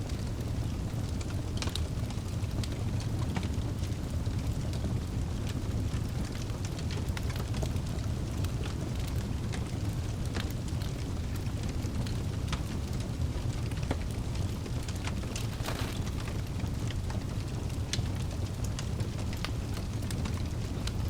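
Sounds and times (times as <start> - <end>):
burning logs crackling and popping: 0.0 - 21.0
low rumble of flame: 0.0 - 21.0.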